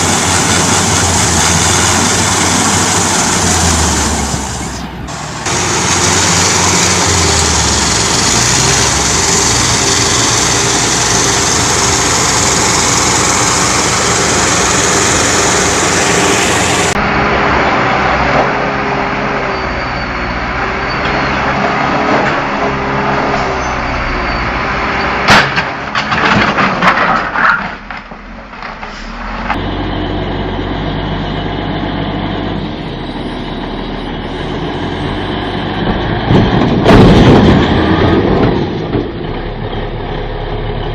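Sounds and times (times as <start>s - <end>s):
diesel engines running: 0.0s - 27.0s, 28.0s - 40.9s
knocks and clattering: 25.2s - 28.9s
sharp bang: 35.9s - 38.6s.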